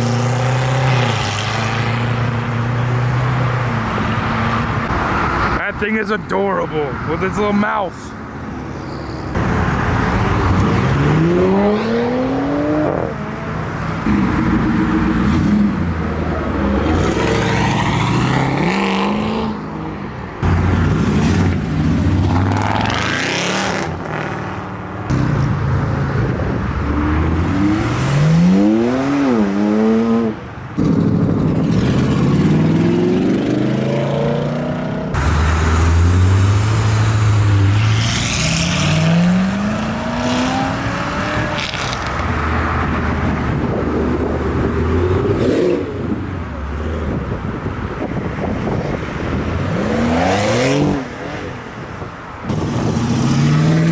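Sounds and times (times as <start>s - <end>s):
modified car engines revving: 0.0s - 6.1s, 7.0s - 53.9s.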